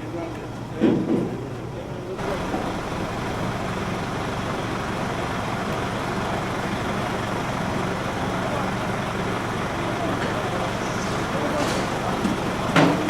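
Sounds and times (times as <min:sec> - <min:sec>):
vehicle engine running: 0:02.1 - 0:13.0
faint voices: 0:07.8 - 0:13.0.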